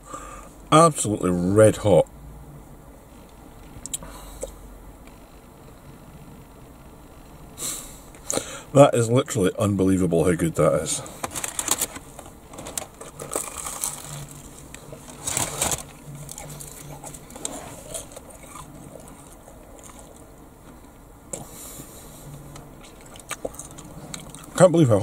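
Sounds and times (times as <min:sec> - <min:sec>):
man chewing crunchy food: 0:12.8 - 0:24.6.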